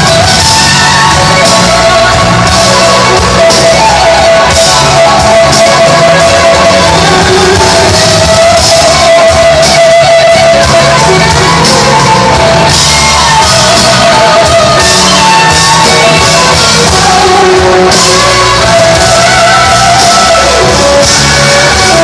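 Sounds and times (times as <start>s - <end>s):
bass and drums: 0.0s - 22.0s
electric guitar lead: 0.0s - 22.0s.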